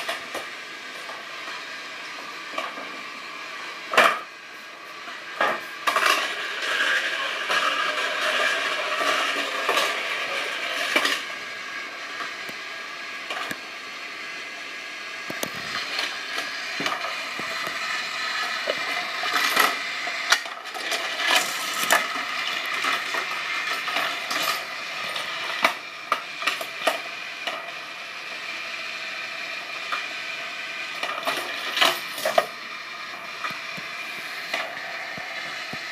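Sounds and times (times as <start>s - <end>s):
toy cars rattling down plastic track: 5.4s - 11.4s, 16.9s - 27.8s, 30.8s - 32.6s.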